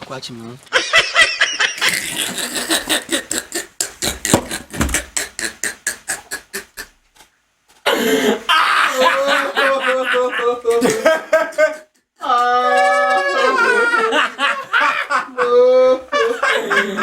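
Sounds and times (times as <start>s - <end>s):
voice: 0.0s - 0.6s, 9.0s - 11.3s
person laughing: 0.8s - 7.0s, 7.9s - 17.0s.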